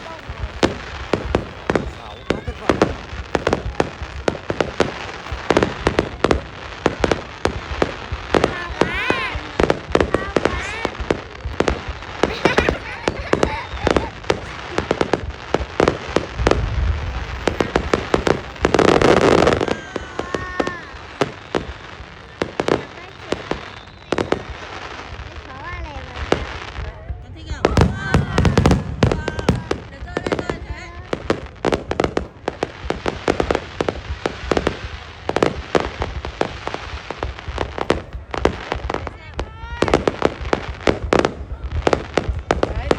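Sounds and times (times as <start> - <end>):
fireworks bangs: 0.0 - 42.9
fireworks crackling: 0.0 - 42.9
low rumble: 14.1 - 22.4.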